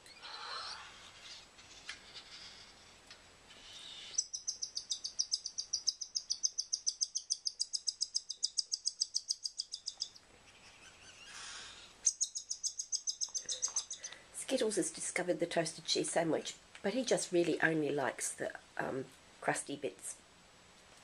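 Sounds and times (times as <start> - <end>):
cockatiel chirping: 3.6 - 14.2.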